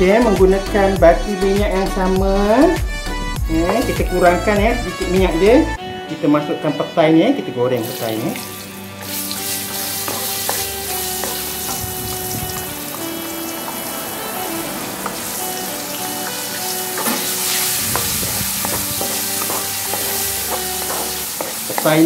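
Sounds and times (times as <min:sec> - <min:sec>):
beans sizzling in oil: 0:07.8 - 0:22.0.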